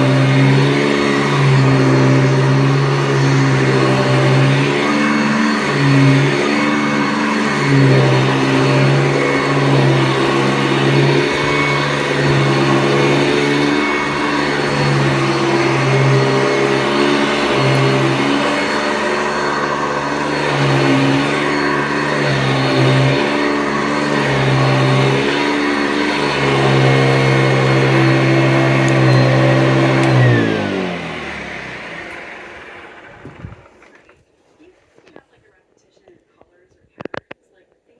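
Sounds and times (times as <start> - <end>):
motor winding down: 0.0 - 34.0
upright vacuum cleaner running: 0.0 - 36.6.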